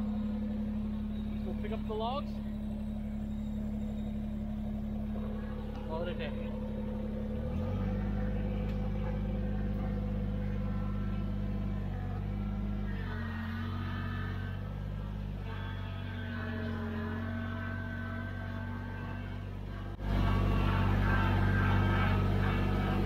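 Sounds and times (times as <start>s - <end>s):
faint high whine: 0.0s - 23.0s
tractor diesel engine running: 0.0s - 23.0s.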